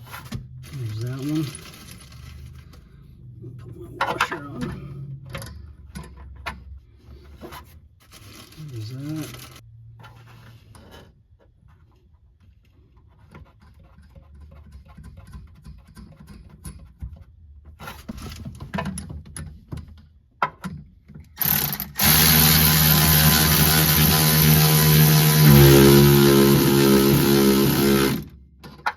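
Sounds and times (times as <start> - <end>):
wrench clicks and rattles: 21.4 - 28.9.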